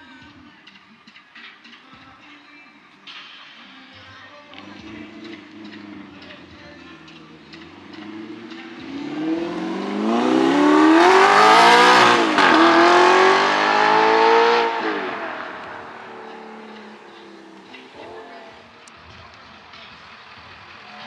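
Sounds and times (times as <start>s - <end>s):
car engine revving past: 7.6s - 18.6s.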